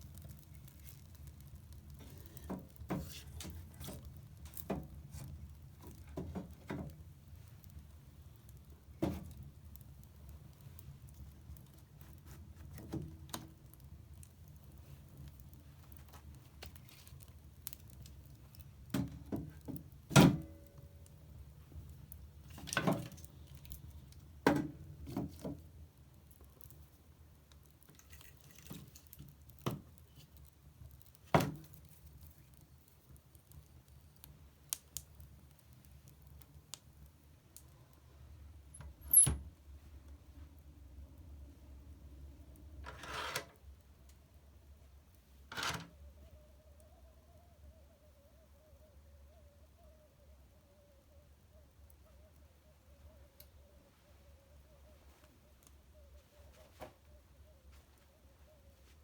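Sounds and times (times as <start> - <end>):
fire crackling and popping: 0.0 - 42.8
fire flames rumbling: 0.0 - 42.8.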